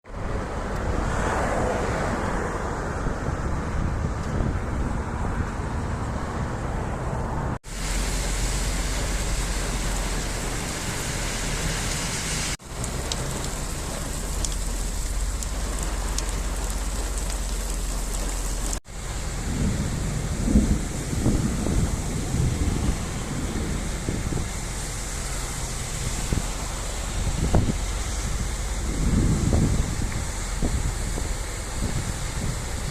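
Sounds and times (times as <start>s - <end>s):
rushing floodwater: 0.1s - 3.6s, 7.6s - 32.9s
wind rumble on microphone: 0.1s - 32.9s
heavy rain: 7.6s - 32.9s.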